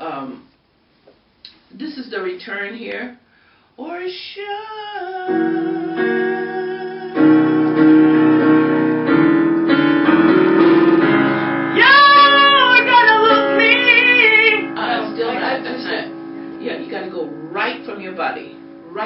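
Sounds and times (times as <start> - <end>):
piano playing bluesy chords: 5.3 - 19.0
woman singing: 11.8 - 16.1.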